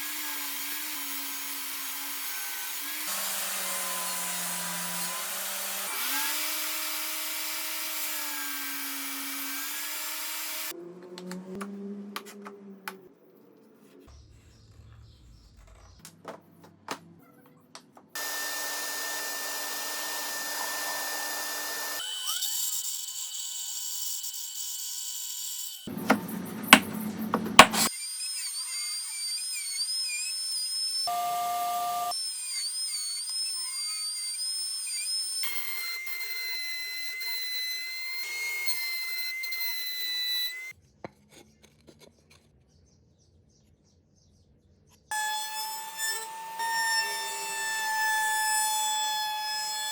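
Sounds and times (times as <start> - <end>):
power tool running: 0.0 - 11.4, 18.2 - 24.3, 25.8 - 28.7
loud sharp knocks: 26.0 - 27.9.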